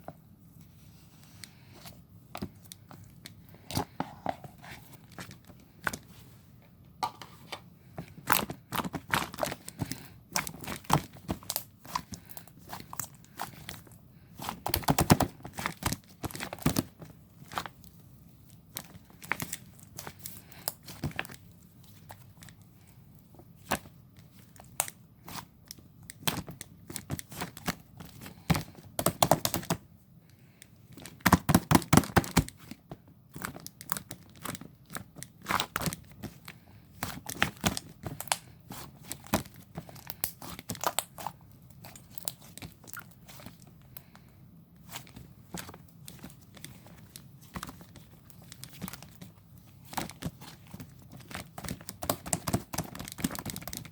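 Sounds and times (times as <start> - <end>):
slime sticky clicks and crackles: 37.0 - 44.2.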